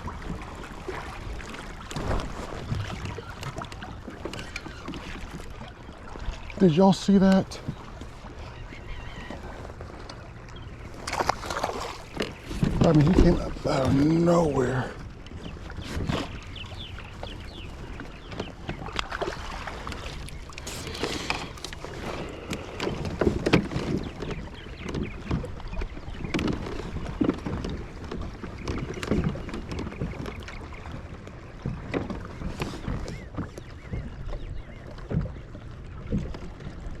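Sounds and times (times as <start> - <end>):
knocks and clicks against hull: 0.0 - 37.0
water: 0.0 - 37.0
wind: 0.0 - 37.0.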